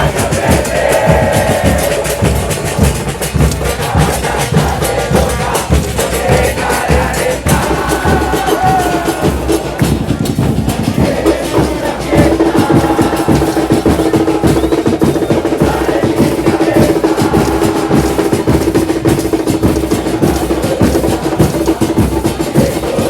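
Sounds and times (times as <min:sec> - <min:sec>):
bass drums beating fast: 0:00.0 - 0:23.0.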